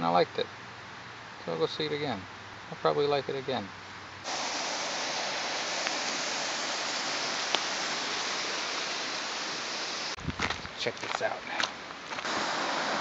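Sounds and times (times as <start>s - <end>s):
rushing water hiss: 2.8s - 10.2s, 11.0s - 13.0s.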